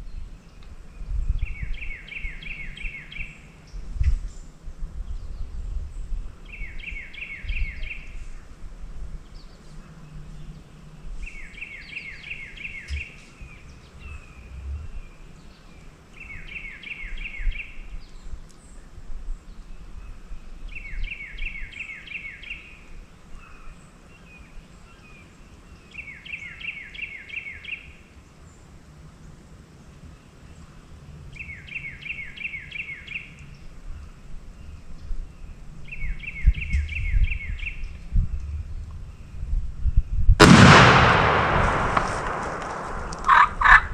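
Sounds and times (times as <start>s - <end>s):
songbird singing: 0.0s - 43.9s
low rumble: 40.4s - 43.9s.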